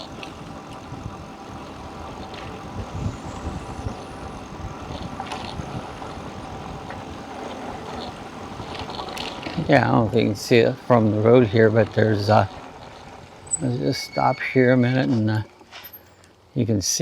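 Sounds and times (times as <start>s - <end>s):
wind noise: 0.0s - 9.4s
electric bike rolling: 0.0s - 17.0s.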